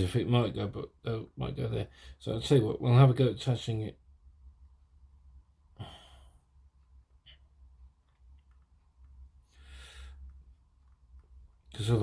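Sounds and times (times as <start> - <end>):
man sighing: 5.8 - 6.4
faint small clicks: 7.2 - 9.3.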